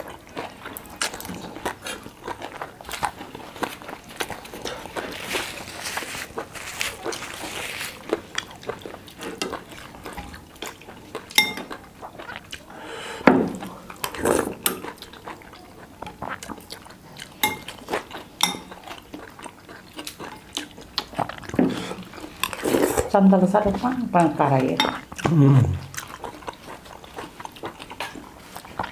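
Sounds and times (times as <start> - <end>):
cutlery clinking on plates: 11.3 - 11.8, 17.4 - 17.8, 18.4 - 18.8.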